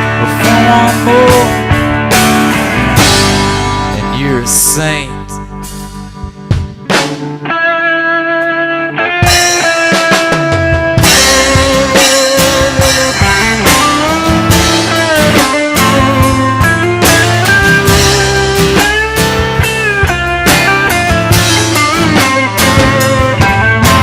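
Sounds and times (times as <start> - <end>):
bass guitar: 0.0 - 24.0
drum kit: 0.0 - 24.0
electric guitar bent notes: 0.0 - 24.0.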